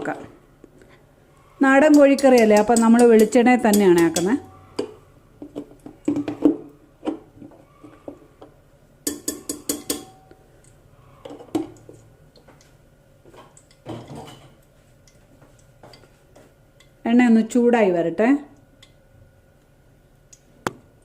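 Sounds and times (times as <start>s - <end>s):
metal kitchenware clinking: 1.7s - 4.9s, 9.0s - 10.3s, 13.6s - 14.6s.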